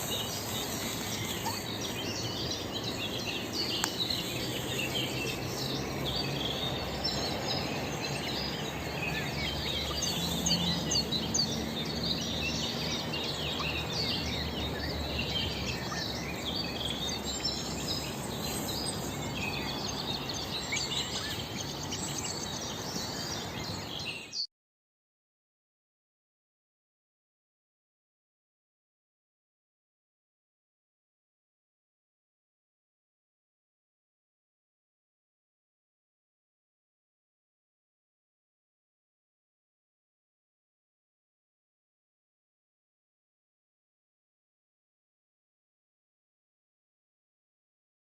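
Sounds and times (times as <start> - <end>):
outdoor background hiss: 0.0 - 24.3
birds chirping and calling: 0.0 - 24.4.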